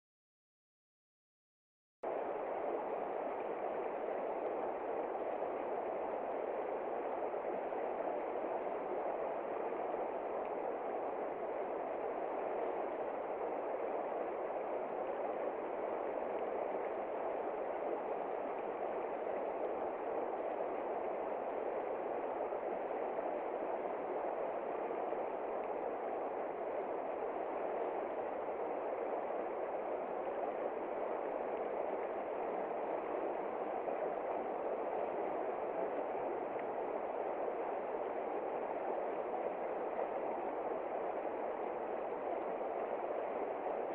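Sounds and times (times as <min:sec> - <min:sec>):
heavy rain on a window: 0:02.1 - 0:43.9.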